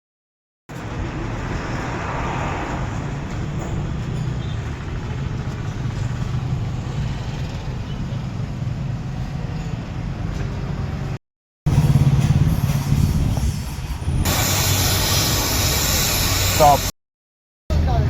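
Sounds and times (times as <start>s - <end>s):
machine droning and hissing: 11.8s - 16.9s.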